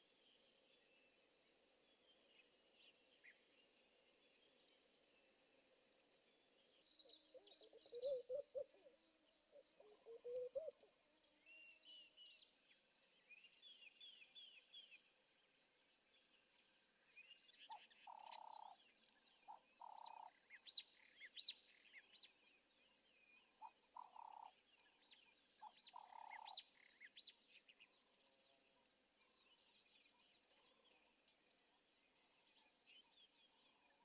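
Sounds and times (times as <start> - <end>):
faint bird chirps and whistles: 6.2 - 31.4.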